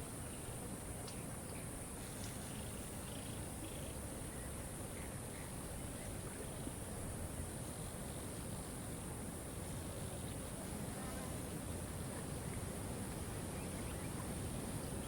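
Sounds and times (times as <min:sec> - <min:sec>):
faint bird chirps: 0:02.4 - 0:06.8, 0:13.5 - 0:15.0.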